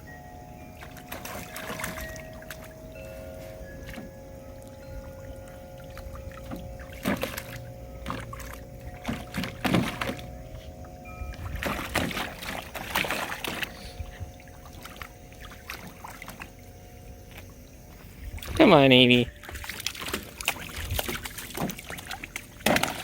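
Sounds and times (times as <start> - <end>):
steady hum: 0.0 - 22.9
running water: 0.6 - 23.0
dog splashing in water: 0.8 - 2.8, 3.8 - 10.4, 11.3 - 16.7, 19.2 - 23.0.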